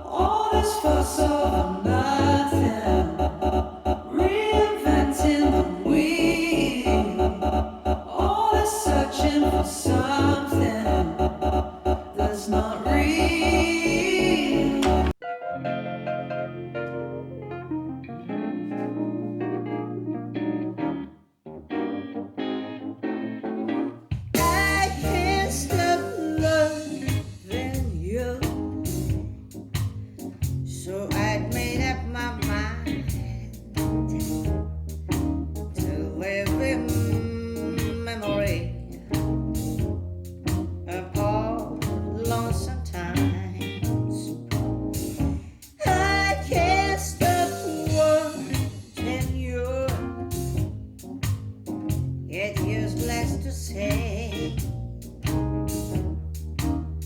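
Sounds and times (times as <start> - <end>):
song with singing over bass and percussion: 0.0 - 15.2, 24.4 - 28.7, 45.3 - 50.3.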